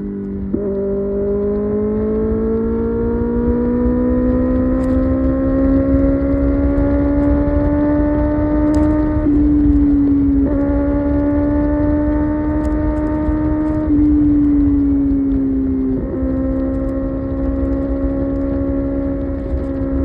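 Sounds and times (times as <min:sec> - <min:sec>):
motorcycle engine accelerating: 0:00.0 - 0:20.0
gear change click: 0:04.5 - 0:05.8, 0:08.2 - 0:14.8.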